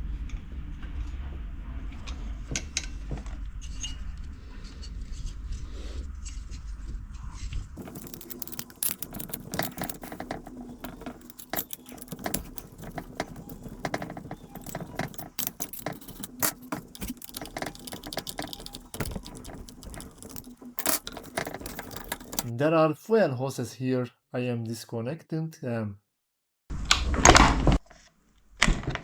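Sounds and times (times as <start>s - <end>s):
metallic clicks of hand tools: 7.8s - 22.5s
small screws clinking: 7.8s - 22.5s.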